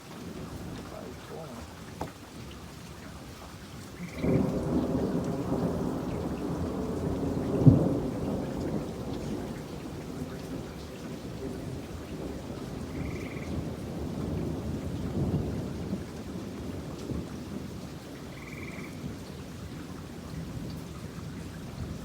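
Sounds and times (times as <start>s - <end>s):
steady rain: 0.0s - 22.0s
thunderclap: 4.0s - 17.7s.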